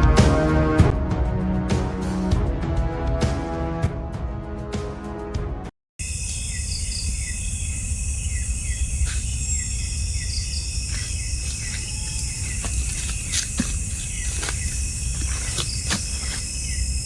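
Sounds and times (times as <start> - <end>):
insects trilling: 6.0 - 17.0.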